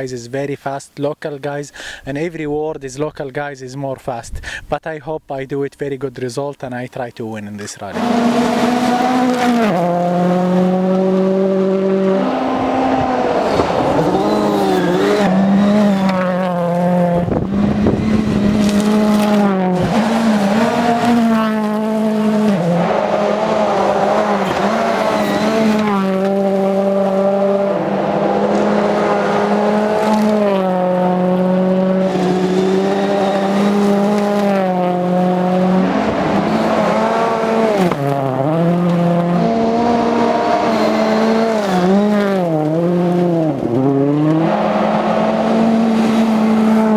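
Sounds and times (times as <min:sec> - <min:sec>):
rally car engine revving: 0:07.9 - 0:46.9.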